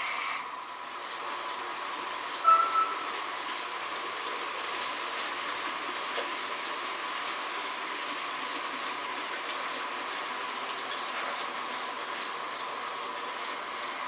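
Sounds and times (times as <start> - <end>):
model trains whirring: 0.0 - 14.0
loud high-pitched tone: 2.4 - 3.2.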